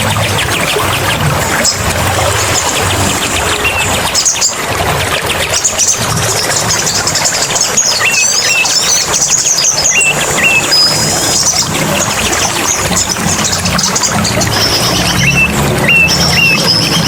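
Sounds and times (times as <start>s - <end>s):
running water: 0.0s - 17.0s
small birds twittering: 0.0s - 17.0s
bird whistles: 7.8s - 11.7s, 14.5s - 17.0s.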